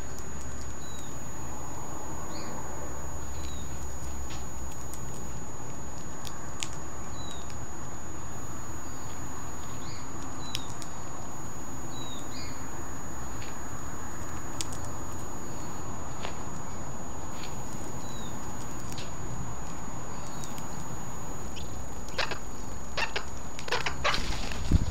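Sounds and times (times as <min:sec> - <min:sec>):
parrot cracking seeds: 0:03.4 - 0:07.6, 0:09.6 - 0:11.0, 0:14.2 - 0:15.3, 0:17.4 - 0:24.6.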